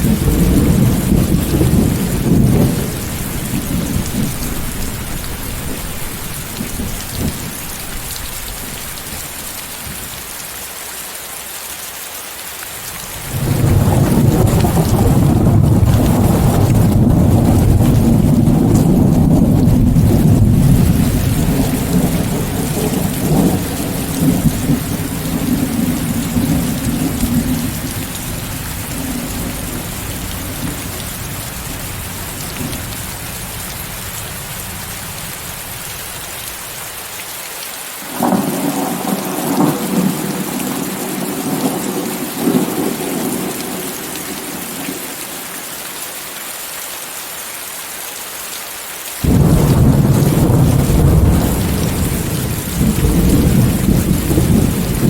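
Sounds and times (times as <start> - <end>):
low rolling thunder: 0.0 - 10.0, 13.3 - 33.5, 38.1 - 45.1, 49.2 - 55.0
steady rain hiss: 0.0 - 55.0.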